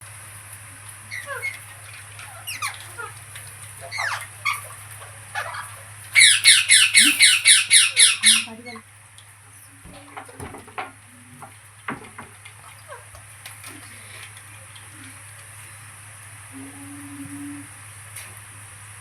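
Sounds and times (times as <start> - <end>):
parrot squawking: 1.0 - 3.2, 3.8 - 8.8
soft parrot chirps: 5.3 - 8.8.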